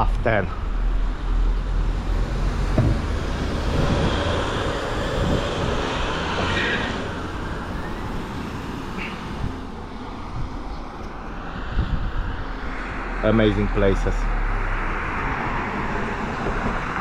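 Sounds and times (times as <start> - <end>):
low traffic rumble: 0.0 - 17.0
vehicle passing: 0.8 - 10.6.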